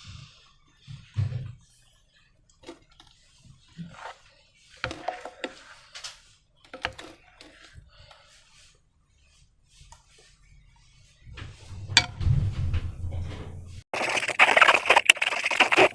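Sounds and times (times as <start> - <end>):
low thump: 11.4 - 13.8.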